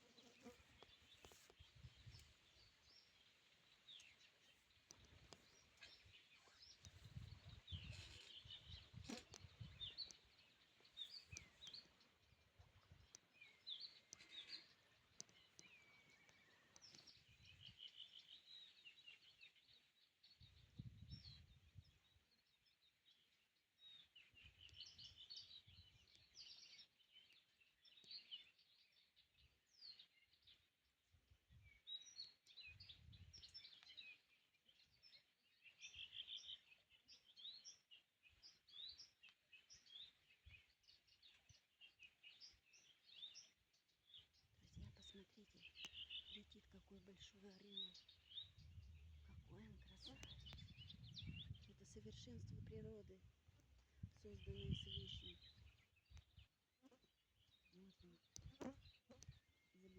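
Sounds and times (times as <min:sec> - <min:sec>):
songbirds chirping: 0:00.0 - 0:59.9
low rumbles: 0:48.3 - 0:52.8.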